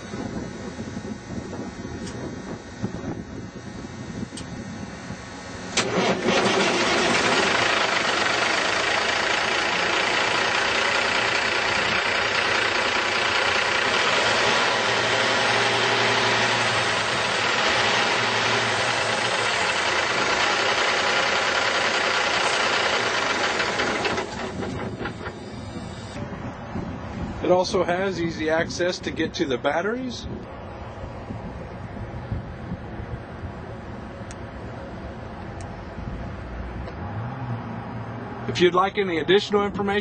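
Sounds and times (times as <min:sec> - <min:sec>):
diesel engine idling: 0:05.2 - 0:28.6
diesel truck engine starting: 0:05.5 - 0:26.3.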